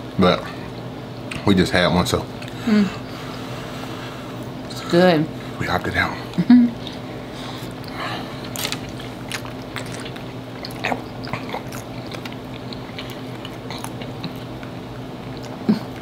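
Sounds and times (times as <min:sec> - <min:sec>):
wet chewing and smacking: 0:06.8 - 0:16.0
food crunching: 0:07.6 - 0:16.0.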